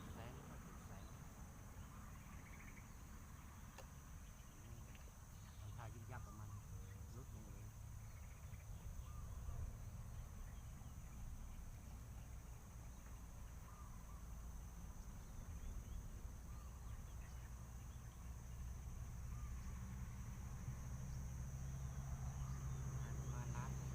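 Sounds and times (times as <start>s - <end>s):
faint bird calls: 0.0s - 23.9s.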